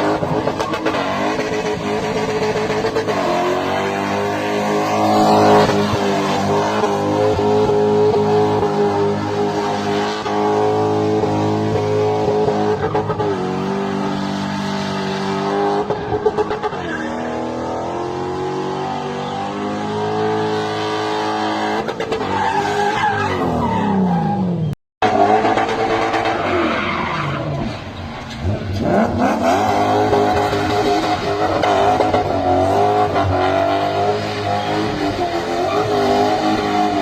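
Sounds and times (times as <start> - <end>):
car engine revving: 0.0 - 22.4, 25.0 - 37.0.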